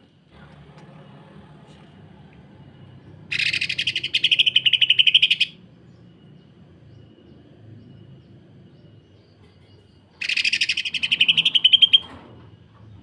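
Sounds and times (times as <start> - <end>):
bird rapid rattling call: 3.3 - 5.5, 10.2 - 12.1.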